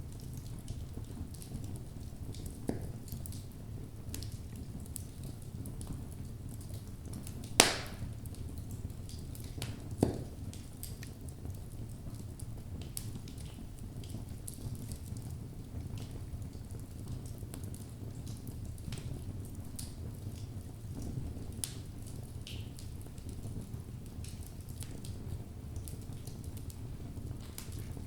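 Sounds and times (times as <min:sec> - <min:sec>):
low rumble of flames: 0:00.0 - 0:28.0
wood fire crackling: 0:00.0 - 0:28.0
loud sharp pop of fire: 0:07.5 - 0:08.2.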